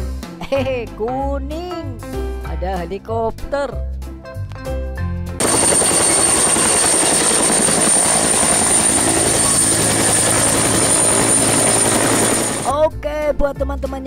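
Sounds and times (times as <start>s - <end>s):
turbine whine: 5.4s - 12.7s
helicopter rotor chop: 5.4s - 12.8s.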